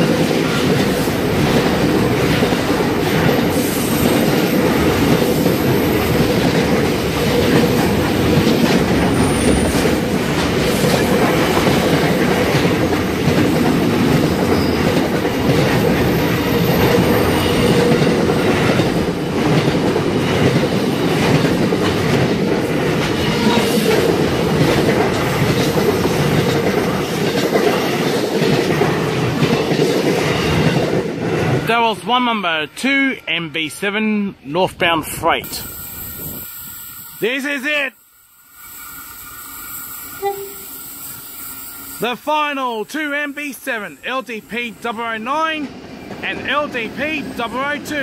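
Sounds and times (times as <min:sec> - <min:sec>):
train wheels clattering: 0:00.0 - 0:31.6.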